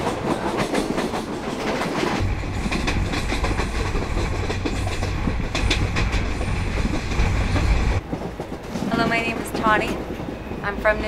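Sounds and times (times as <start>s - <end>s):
train wheels clattering over rails: 0.0s - 11.0s
deep steady rumble: 2.2s - 8.0s.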